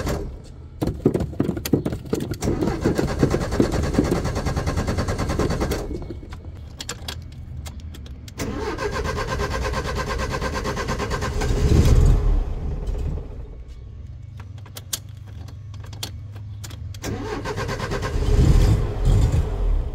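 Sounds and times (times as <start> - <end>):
car engine cranking by starter: 2.4 - 6.5, 8.4 - 13.6, 17.0 - 19.9.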